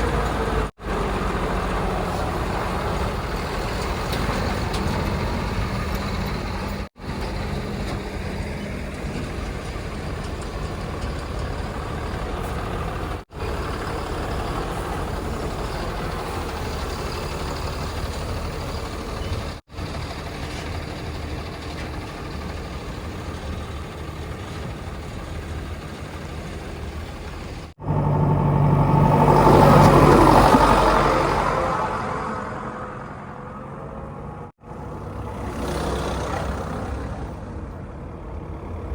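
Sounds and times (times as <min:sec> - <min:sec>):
diesel engines running: 0:00.0 - 0:38.9
vehicle passing close: 0:27.8 - 0:38.9.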